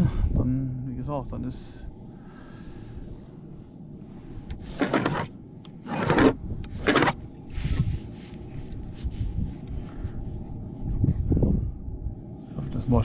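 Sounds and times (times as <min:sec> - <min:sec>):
roofing materials scraping: 0:04.6 - 0:08.4.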